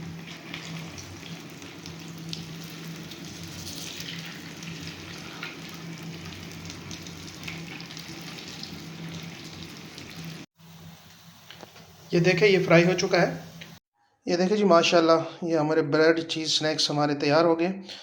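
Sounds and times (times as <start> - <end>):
bread rolls frying with crackles: 0.0 - 13.8.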